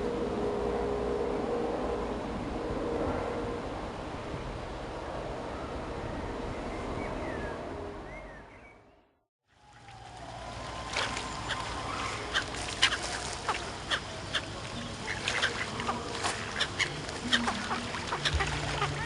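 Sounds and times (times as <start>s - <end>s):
birds calling: 10.6s - 19.0s
background hubbub: 11.0s - 19.0s.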